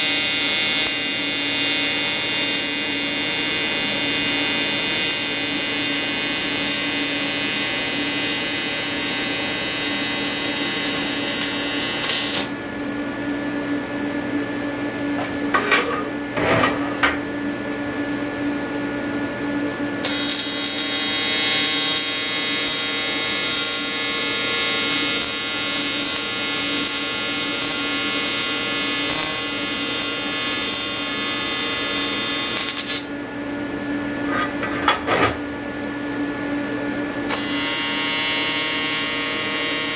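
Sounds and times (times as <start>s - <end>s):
welder hum: 0.0s - 12.6s, 20.0s - 33.2s, 37.3s - 39.9s
welding arc buzzing: 0.0s - 12.6s, 20.0s - 33.2s, 37.3s - 39.9s.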